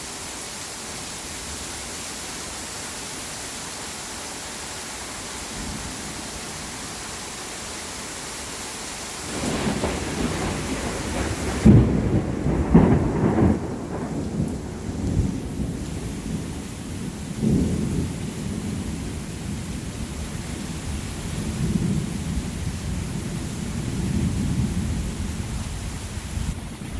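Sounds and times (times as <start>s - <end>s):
steady rain hiss: 0.0s - 26.9s
loud thunder cracks: 9.2s - 16.5s
thunder rumbling: 9.2s - 26.9s.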